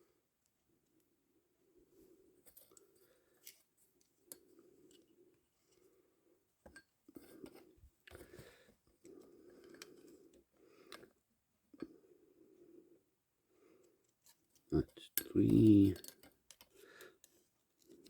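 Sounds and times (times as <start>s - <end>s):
faint metallic clicks and scrapes: 2.3s - 5.9s, 6.6s - 11.2s, 13.8s - 18.0s.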